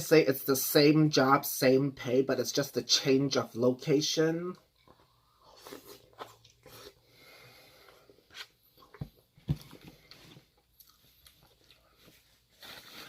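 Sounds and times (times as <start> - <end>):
person chewing: 4.7 - 7.1, 7.8 - 13.0.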